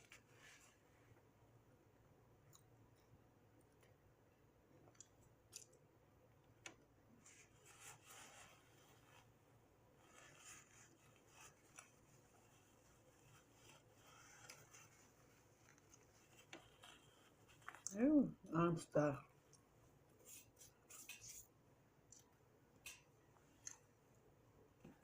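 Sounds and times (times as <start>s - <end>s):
soft rustles: 0.0s - 1.3s, 7.2s - 18.0s.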